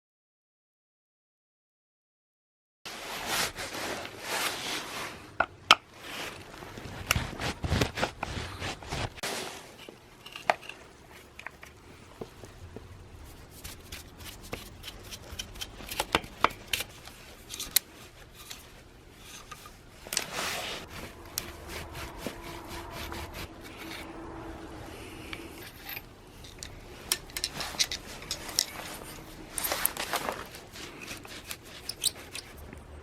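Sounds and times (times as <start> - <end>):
rubbing and scraping: 2.9 - 12.5, 13.1 - 33.0
faint steady hum: 9.6 - 33.0.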